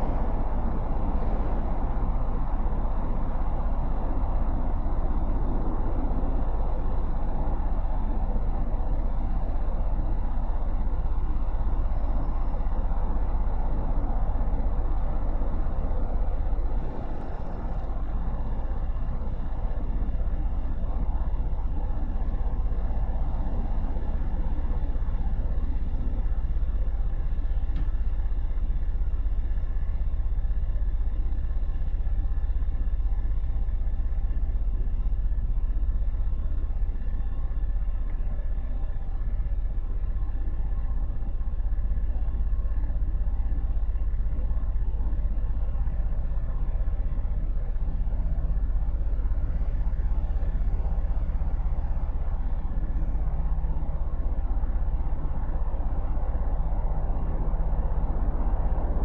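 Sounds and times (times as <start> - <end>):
road noise: 0.0 - 28.0, 45.4 - 59.0
low motorcycle engine rumble: 0.0 - 59.0.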